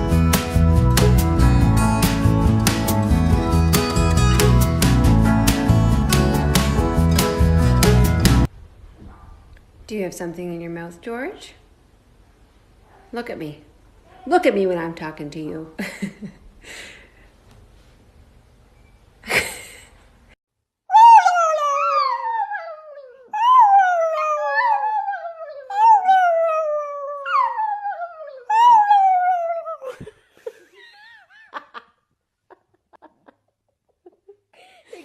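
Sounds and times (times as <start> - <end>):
dog whining and howling: 20.9 - 30.1.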